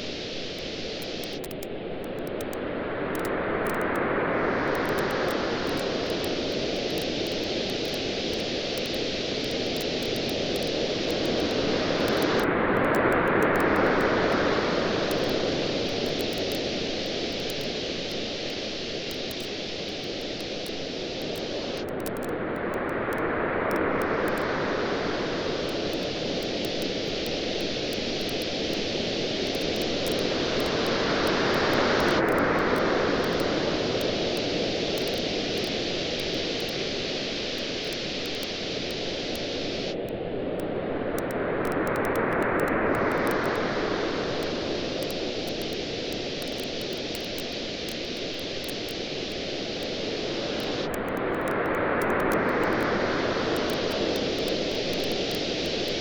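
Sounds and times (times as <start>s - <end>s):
faint campfire crackle: 0.0s - 56.0s
waves washing on beach: 22.5s - 56.0s.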